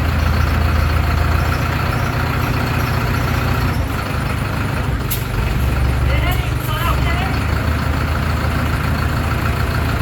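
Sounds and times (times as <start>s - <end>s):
heavy truck engine idling: 0.0s - 10.0s.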